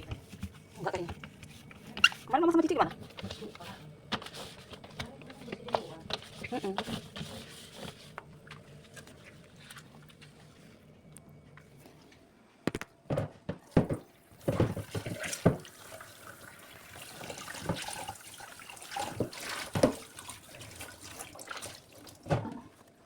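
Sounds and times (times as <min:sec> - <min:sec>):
things knocking and clattering: 0:12.7 - 0:15.7
tap water running into sink: 0:13.8 - 0:22.7.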